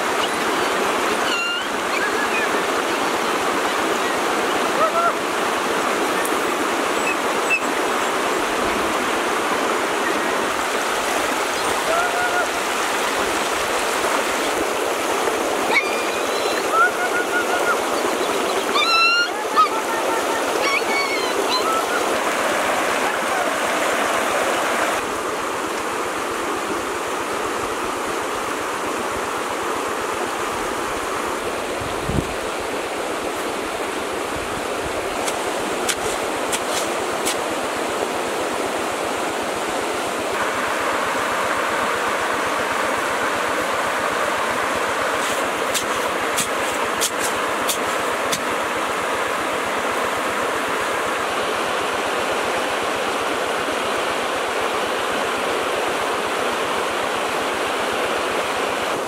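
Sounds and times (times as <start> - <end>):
stream rushing over rocks: 0.0 - 59.0
short high calls: 1.2 - 2.6, 15.7 - 22.2.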